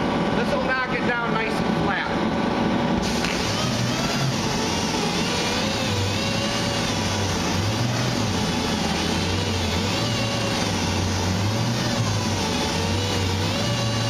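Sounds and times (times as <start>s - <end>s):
sander hissing and whining: 3.0s - 14.0s.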